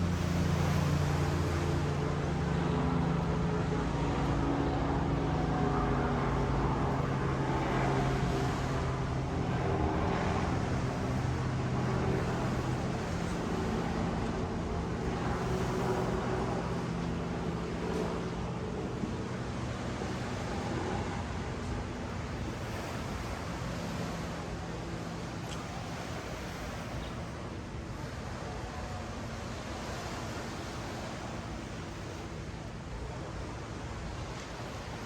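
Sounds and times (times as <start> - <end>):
surf: 0.0 - 35.0.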